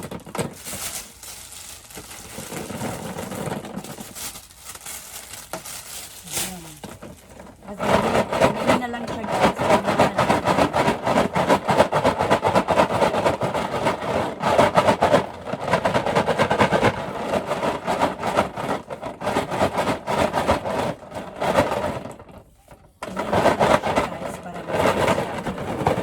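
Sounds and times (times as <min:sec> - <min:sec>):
raffle balls rattling in box: 0:00.0 - 0:26.0.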